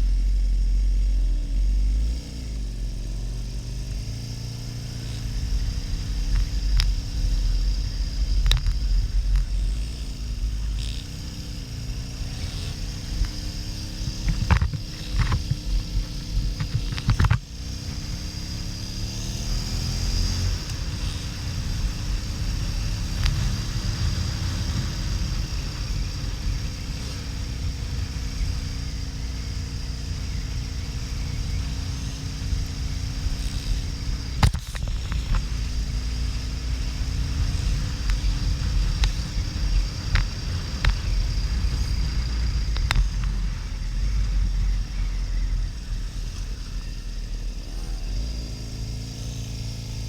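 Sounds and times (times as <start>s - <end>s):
motorcycle engine running: 0.0s - 50.0s
wind rumble on microphone: 0.0s - 50.0s.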